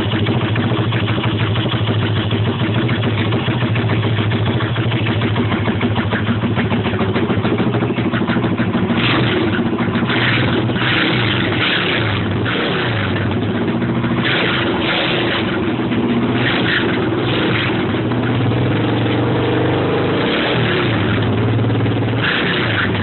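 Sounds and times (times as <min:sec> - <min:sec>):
pit bike engine idling: 0:00.0 - 0:23.0.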